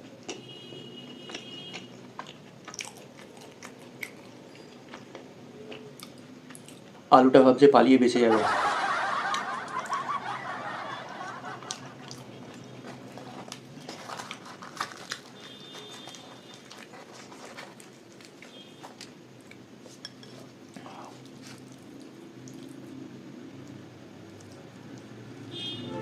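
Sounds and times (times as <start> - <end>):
chewing: 0.0 - 0.4, 1.1 - 7.0, 11.6 - 25.2.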